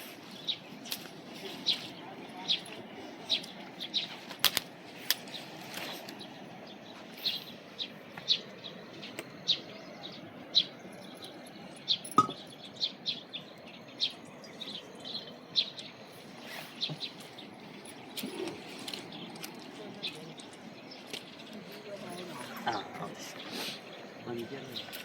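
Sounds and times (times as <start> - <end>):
bird chirping: 5.2 - 25.0.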